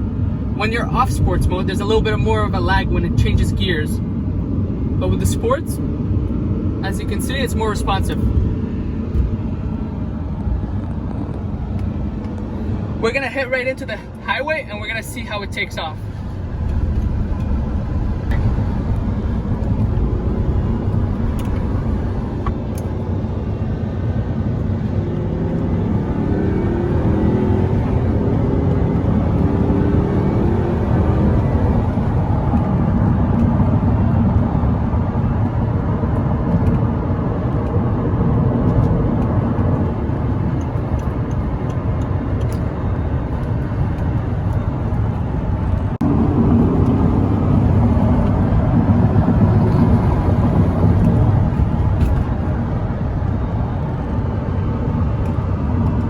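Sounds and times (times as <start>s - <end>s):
road noise: 0.0s - 56.0s
car engine accelerating hard: 14.5s - 56.0s
loud car exhaust: 15.8s - 56.0s.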